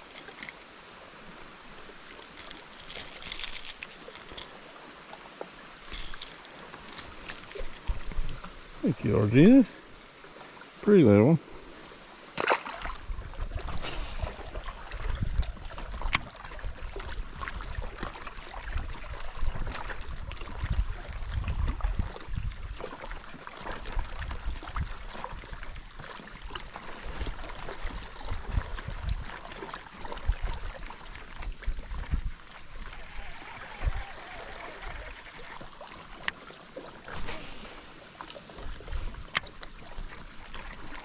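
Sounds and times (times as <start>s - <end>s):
wind rumbling on microphone: 12.8s - 22.8s, 23.8s - 36.2s
watery hiss: 13.6s - 16.1s, 37.0s - 39.3s.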